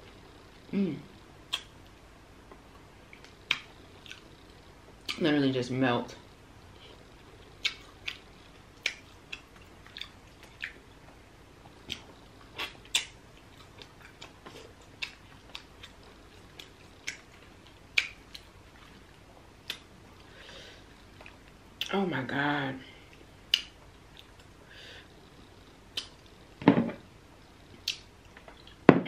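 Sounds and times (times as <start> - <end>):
mouth smacks and chewing: 1.5 - 1.7, 7.6 - 8.2, 8.8 - 11.2, 11.8 - 19.0.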